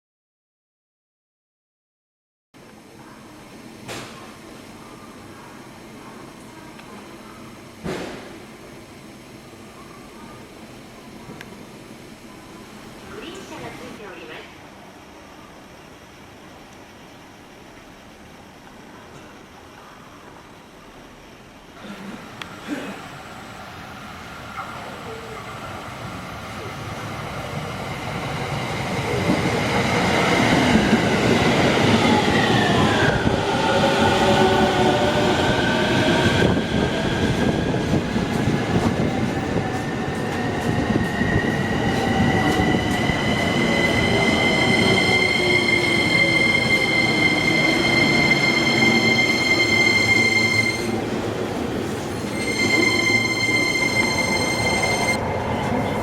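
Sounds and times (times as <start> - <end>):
train rumbling: 21.8 - 56.0.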